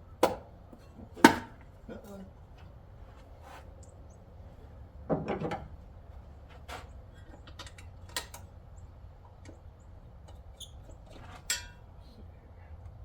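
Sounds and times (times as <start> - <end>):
engine parts rattling: 4.6 - 11.9.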